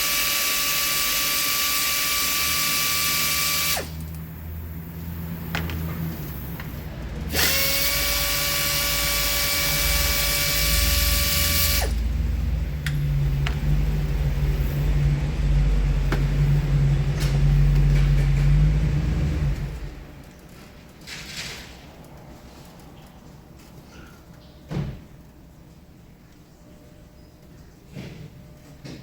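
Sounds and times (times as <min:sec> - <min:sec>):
power tool running: 0:00.0 - 0:04.2, 0:07.3 - 0:12.1.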